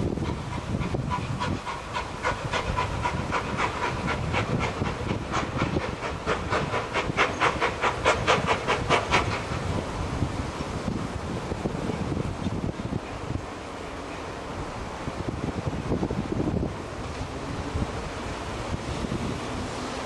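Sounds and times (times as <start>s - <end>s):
steam locomotive chuffing: 0.0s - 10.2s
train rumble: 0.0s - 20.0s.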